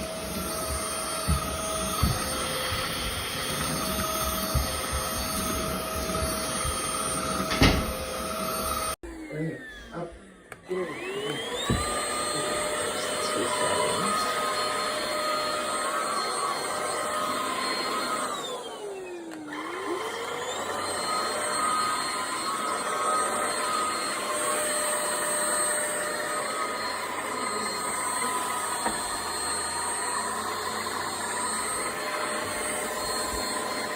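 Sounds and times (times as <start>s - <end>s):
vacuum motor whining: 0.0s - 33.9s.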